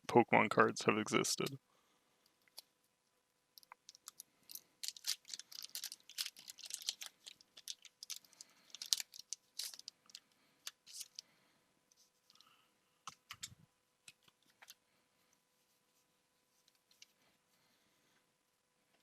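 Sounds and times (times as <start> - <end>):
cards and foil crinkling: 3.9 - 11.2.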